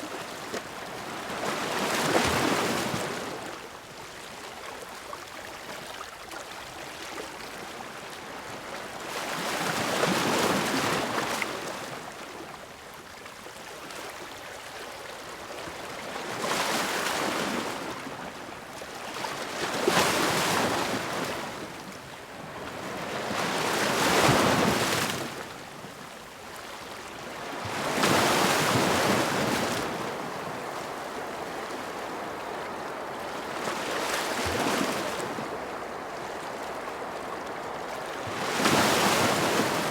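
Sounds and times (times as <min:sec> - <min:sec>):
ocean waves breaking: 0:27.5 - 0:39.9.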